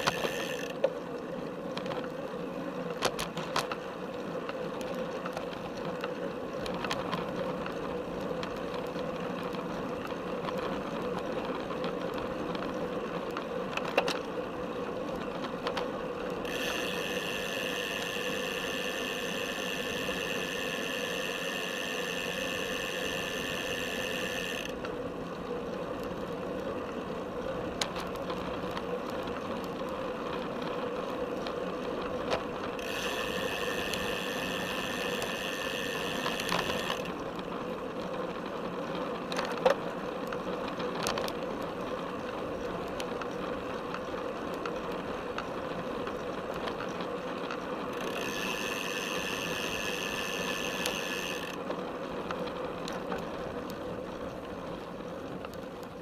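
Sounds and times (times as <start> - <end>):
bicycle drivetrain rattling: 0.0 - 56.0
high steady buzzing: 16.4 - 24.8, 32.8 - 37.1.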